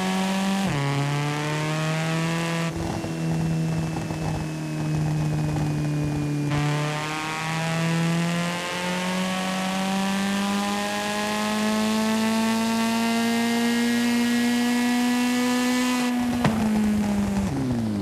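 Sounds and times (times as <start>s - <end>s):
video game car engine accelerating: 0.0s - 18.0s.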